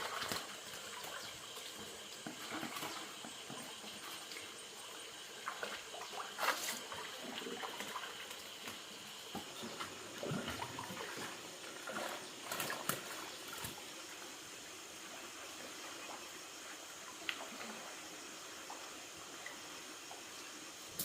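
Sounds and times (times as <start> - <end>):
small water splashes: 0.0 - 14.0
water trickling and sloshing: 0.0 - 21.0.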